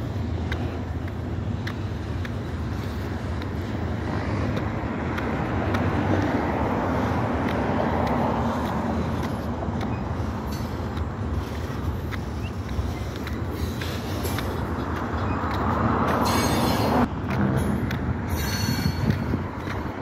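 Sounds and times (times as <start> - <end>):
freight train rumbling past: 5.5 - 20.0.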